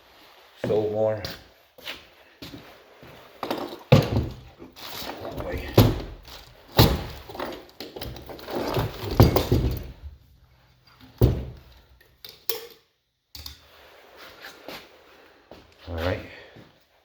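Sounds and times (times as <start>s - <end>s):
heavy objects clattering: 3.2s - 10.3s.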